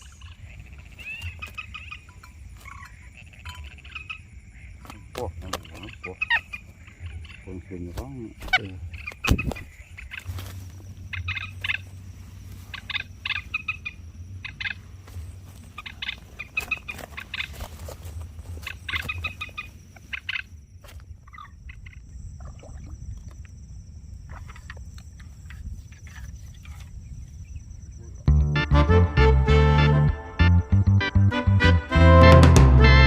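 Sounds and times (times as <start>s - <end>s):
moorhen clucking calls: 0.0s - 22.1s.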